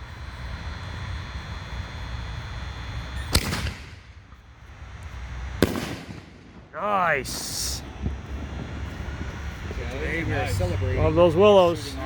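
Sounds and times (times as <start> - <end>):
firework bang bursting: 3.3 - 4.1, 5.6 - 6.8.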